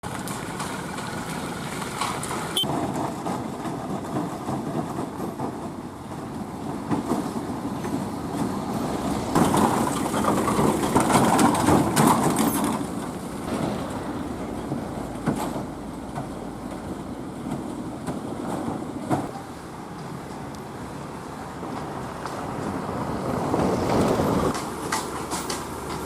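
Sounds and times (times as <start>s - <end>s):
tyres churning through water: 0.0s - 5.2s, 7.3s - 19.3s
truck engines running: 0.0s - 26.0s.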